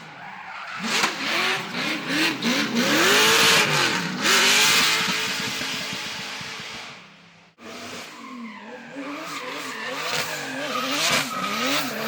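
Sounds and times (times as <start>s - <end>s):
car engine revving: 0.8s - 6.8s, 7.6s - 12.0s.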